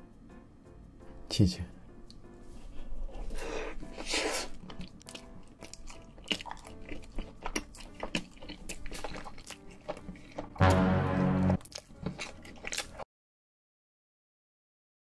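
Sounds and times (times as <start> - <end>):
biting into a burger: 3.2 - 13.0
chewing with wet mouth clicks: 4.6 - 10.6, 11.6 - 13.0.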